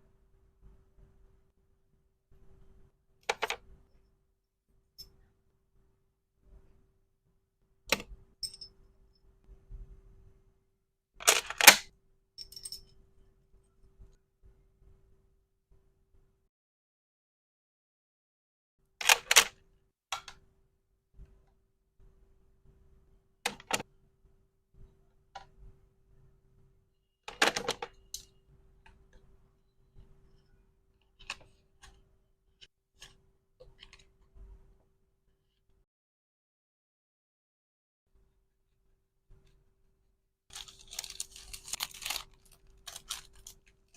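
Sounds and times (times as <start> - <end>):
plastic pieces clicking and snapping: 40.5 - 43.9.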